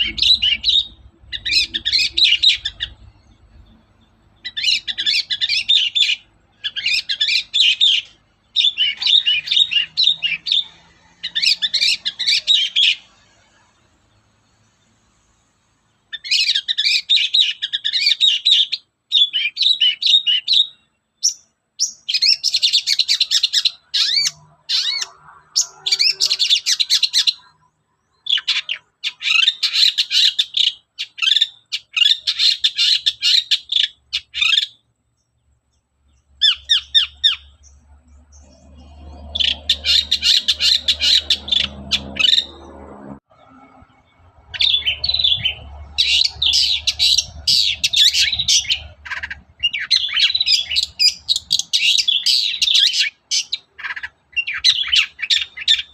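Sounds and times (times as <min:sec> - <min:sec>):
bird scratchy chattering song: 0:00.0 - 0:03.7, 0:04.4 - 0:13.7, 0:16.1 - 0:34.8, 0:36.2 - 0:43.0, 0:43.7 - 0:55.9
low rumbling noise: 0:37.5 - 0:51.3.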